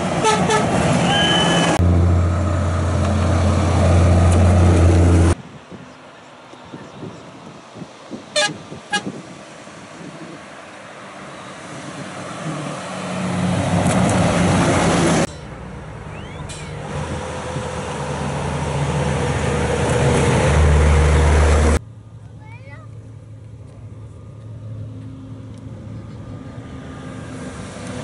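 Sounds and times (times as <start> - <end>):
truck engines passing: 0.0 - 28.0
horn toots: 0.2 - 1.8, 8.3 - 9.2.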